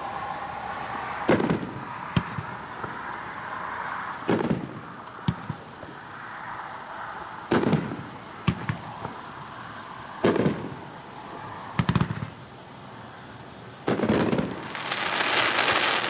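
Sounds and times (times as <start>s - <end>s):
steady hiss: 0.0s - 16.0s
firework pops: 4.3s - 6.0s, 7.5s - 9.2s, 10.2s - 10.8s, 11.8s - 12.4s, 13.8s - 16.0s.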